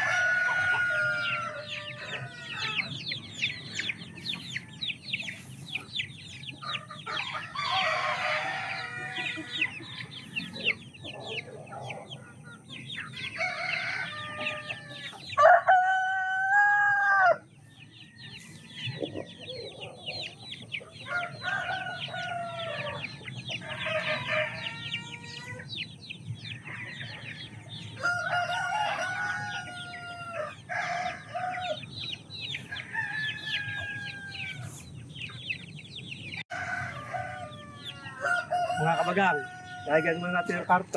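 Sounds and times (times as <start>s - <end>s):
rooster crowing: 0.0s - 5.1s, 7.0s - 10.3s, 13.2s - 17.4s, 21.1s - 25.8s, 26.6s - 32.0s, 32.6s - 34.8s, 36.5s - 40.8s
chickens clucking: 0.0s - 40.9s.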